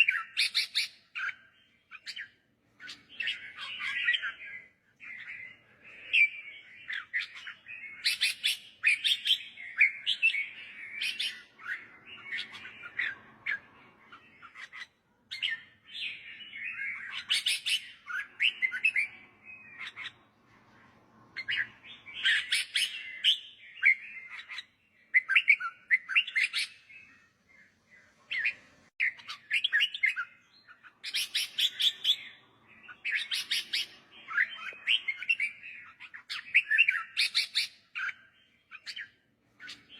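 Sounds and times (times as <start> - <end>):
bulbul whistled song: 14.4 - 20.2, 21.4 - 27.2, 28.3 - 39.9.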